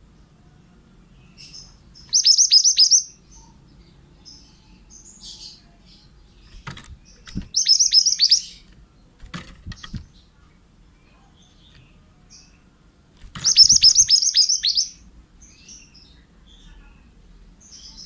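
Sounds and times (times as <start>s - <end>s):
faint bird chirps: 0.4s - 9.1s, 9.7s - 18.0s
bird song high downslurred notes: 13.4s - 15.0s.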